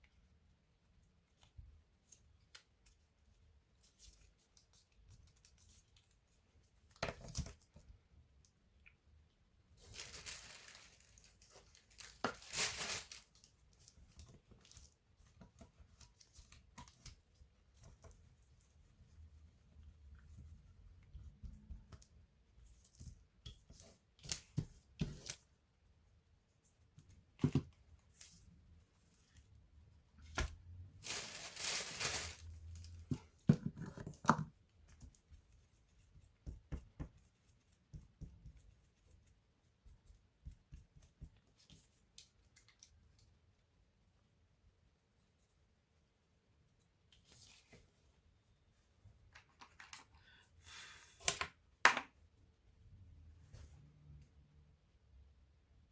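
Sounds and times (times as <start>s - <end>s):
rustling handling noise: 9.6s - 43.0s.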